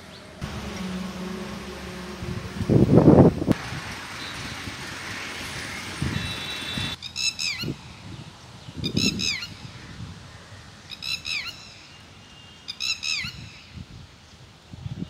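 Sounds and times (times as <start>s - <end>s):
low rumble: 0.4s - 3.6s.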